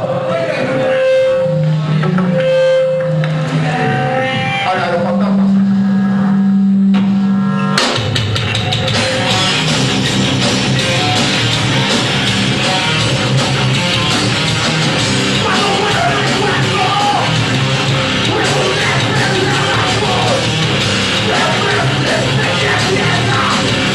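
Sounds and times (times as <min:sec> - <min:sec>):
live rock band playing: 0:07.8 - 0:23.9.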